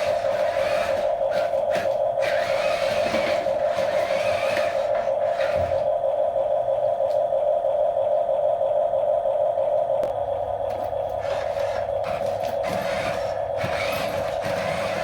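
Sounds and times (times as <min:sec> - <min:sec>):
small electric motor whining: 0:00.0 - 0:06.0, 0:11.2 - 0:15.0.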